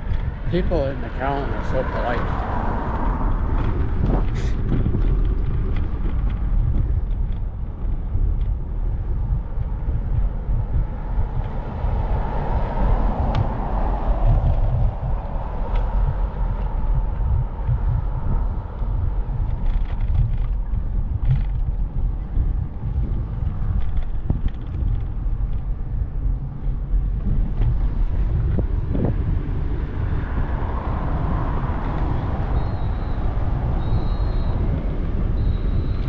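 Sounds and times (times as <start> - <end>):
road traffic noise: 0.0 - 36.0
vehicle passing: 0.0 - 36.0
wind buffeting microphone: 0.0 - 36.0.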